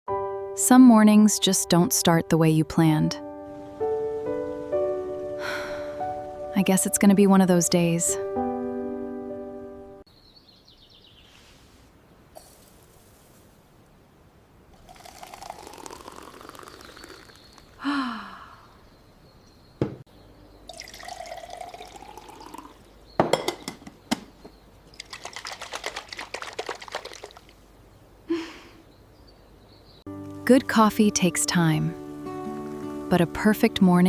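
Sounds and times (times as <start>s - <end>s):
liquid pouring into a cup: 14.8s - 17.8s, 20.7s - 22.9s, 25.0s - 27.6s
kitchenware clinking: 23.2s - 24.2s.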